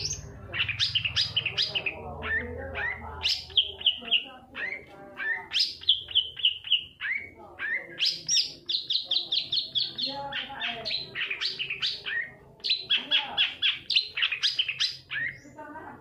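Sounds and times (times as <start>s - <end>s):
bird singing high chirps: 0.0s - 16.0s.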